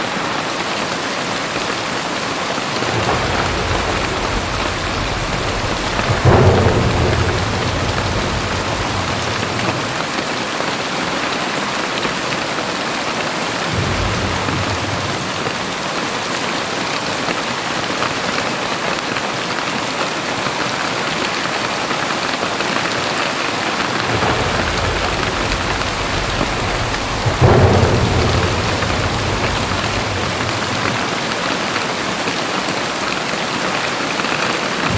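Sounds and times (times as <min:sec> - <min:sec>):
heavy rain hissing: 0:00.0 - 0:10.9, 0:13.3 - 0:17.0, 0:22.8 - 0:32.9
deep low rumbles: 0:02.7 - 0:10.2, 0:13.7 - 0:16.0, 0:23.8 - 0:31.7.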